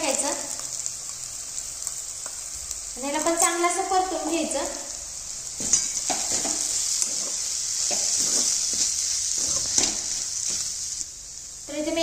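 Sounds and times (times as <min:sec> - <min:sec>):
paste sizzling in oil: 0:00.0 - 0:12.0
metal spatula scraping pan: 0:05.6 - 0:10.7.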